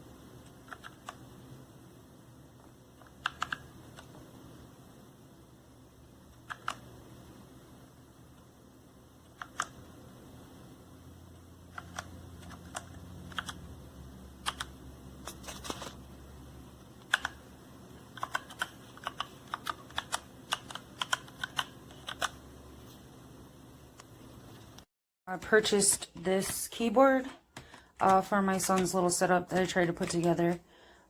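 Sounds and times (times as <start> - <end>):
mechanical keyboard typing: 0.5 - 1.2, 3.0 - 4.1, 6.4 - 6.9, 9.3 - 9.8, 11.7 - 13.6, 14.4 - 15.9, 17.0 - 22.4, 27.6 - 30.6.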